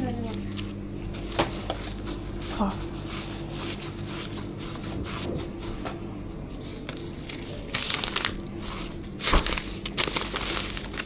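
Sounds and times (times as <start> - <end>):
steady low hum: 0.0 - 11.0
plastic packaging crinkling: 6.5 - 11.0.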